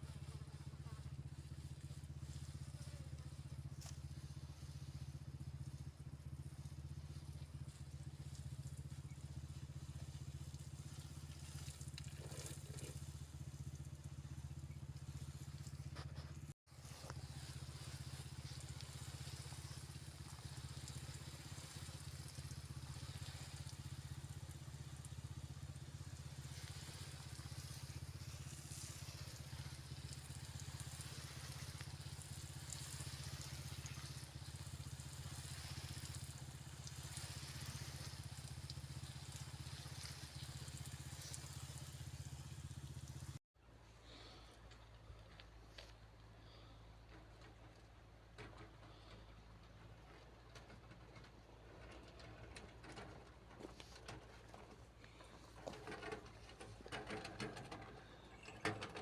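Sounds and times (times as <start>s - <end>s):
low motor drone: 0.0s - 43.4s.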